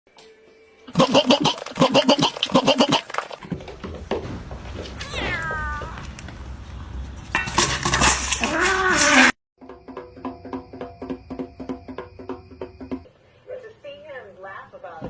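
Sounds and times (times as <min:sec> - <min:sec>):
cat meowing: 0:05.0 - 0:06.1.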